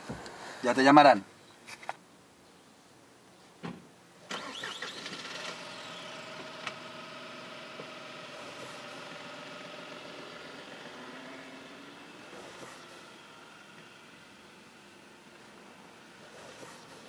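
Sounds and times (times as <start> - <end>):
car engine starting and running: 4.3 - 17.0.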